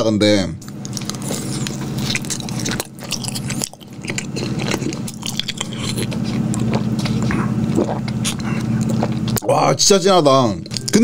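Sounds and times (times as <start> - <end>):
biting and chewing donut: 0.6 - 11.0
drinking milk: 0.9 - 9.5.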